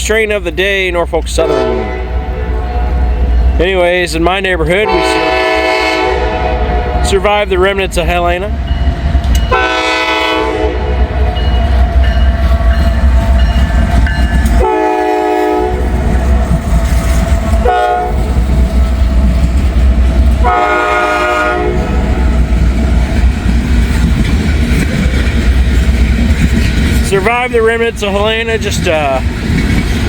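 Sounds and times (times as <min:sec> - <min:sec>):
train rumble: 0:00.0 - 0:30.0
locomotive horn: 0:01.3 - 0:03.4, 0:04.8 - 0:07.2, 0:09.5 - 0:11.4, 0:14.5 - 0:18.4, 0:20.3 - 0:22.4
train cars clattering on rails: 0:06.8 - 0:30.0.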